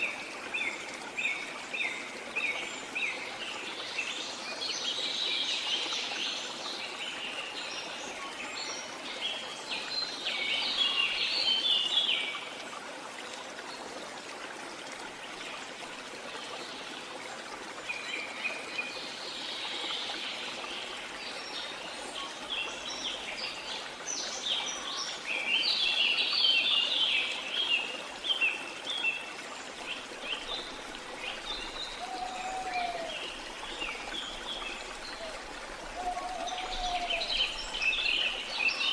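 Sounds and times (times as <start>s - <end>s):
running water: 0.0s - 38.9s
birds singing: 30.2s - 38.9s.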